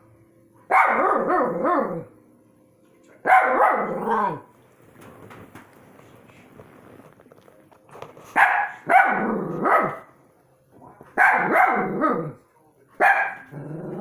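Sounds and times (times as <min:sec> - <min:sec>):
dogs barking: 0:00.7 - 0:02.1, 0:03.2 - 0:04.5, 0:08.3 - 0:10.2, 0:11.1 - 0:12.4, 0:13.0 - 0:14.0.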